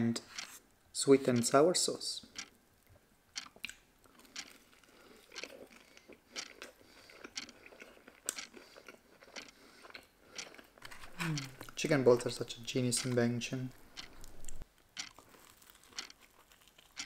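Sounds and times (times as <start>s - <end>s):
faint chewing crunches: 3.4s - 17.0s.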